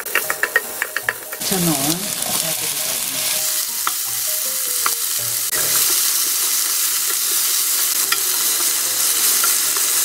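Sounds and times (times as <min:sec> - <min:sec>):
utensil tapping pan: 0:00.0 - 0:02.5, 0:04.8 - 0:06.1
food sizzling in hot oil: 0:00.0 - 0:10.0.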